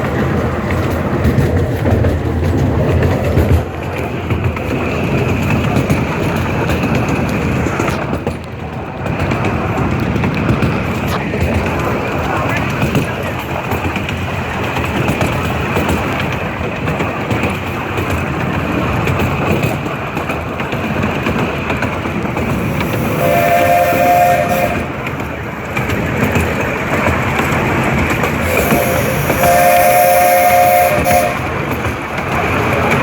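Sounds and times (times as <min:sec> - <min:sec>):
train rumbling on rails: 0:00.0 - 0:33.0
steam whistle blasts: 0:22.9 - 0:25.0, 0:28.4 - 0:31.6.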